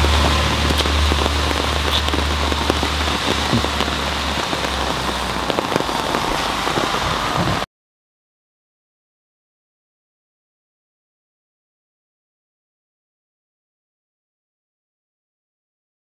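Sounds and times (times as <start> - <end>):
low hum: 0.0 - 7.6
steady rain falling: 0.0 - 7.7.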